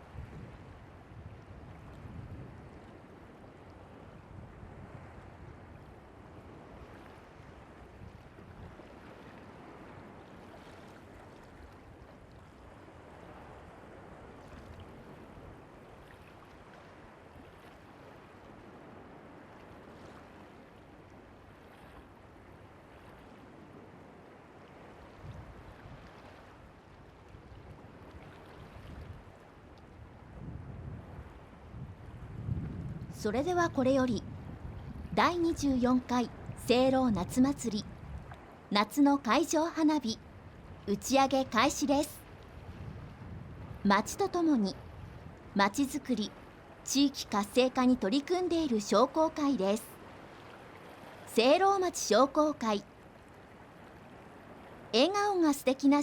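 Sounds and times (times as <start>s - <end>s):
wind rumble on microphone: 0.0s - 38.7s, 40.2s - 41.6s, 42.2s - 44.0s, 44.7s - 45.6s
faint sea waves washing: 0.0s - 56.0s.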